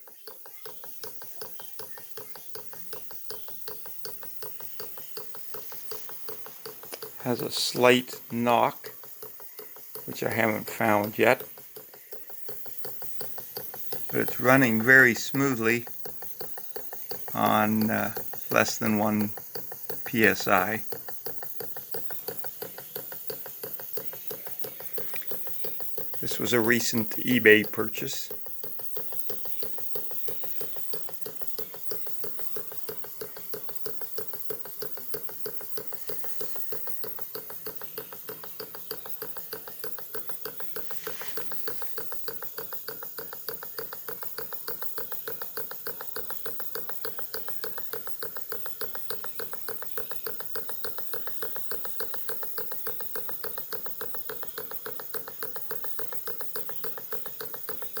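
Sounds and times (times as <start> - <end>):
small steam engine running: 0.0 - 58.0
engine knock: 28.3 - 58.0.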